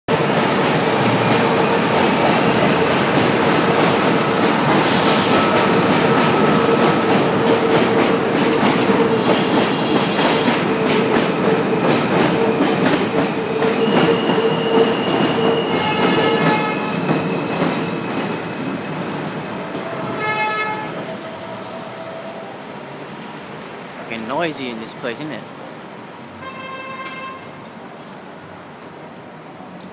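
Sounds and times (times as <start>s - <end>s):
train rumbling past: 0.1s - 29.9s
high wheel squeal: 13.4s - 18.6s.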